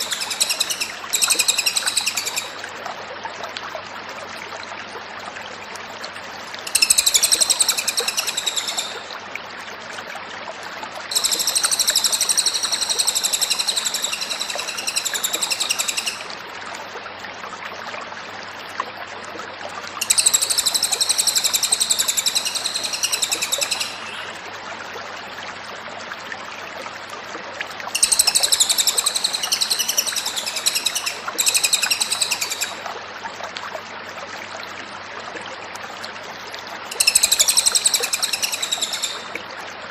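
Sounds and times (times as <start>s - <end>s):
songbird chattering song: 0.0s - 2.6s, 6.7s - 9.1s, 11.1s - 16.3s, 20.0s - 24.3s, 28.0s - 32.8s, 36.9s - 39.3s.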